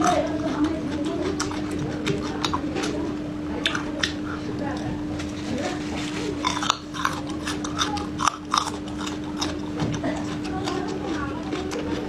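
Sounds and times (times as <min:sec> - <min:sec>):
chewing food with crunches: 0:00.0 - 0:12.0
wet mouth clicks: 0:03.6 - 0:04.4, 0:06.4 - 0:12.0.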